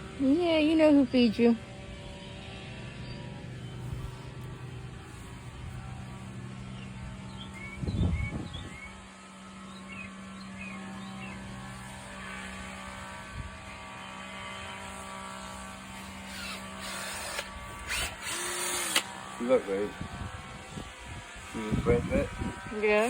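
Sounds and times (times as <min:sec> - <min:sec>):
low engine-like drone: 0:00.0 - 0:23.0.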